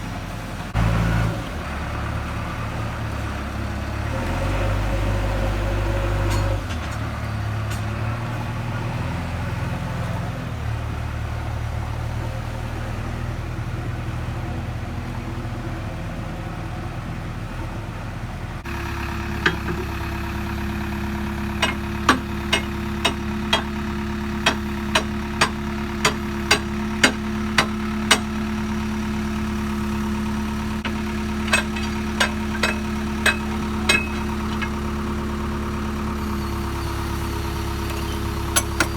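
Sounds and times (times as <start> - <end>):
diesel engine idling: 0.0 - 38.9
sharp metal knocks: 19.4 - 19.9, 21.6 - 23.8, 24.4 - 28.3, 30.8 - 34.8, 37.9 - 38.9.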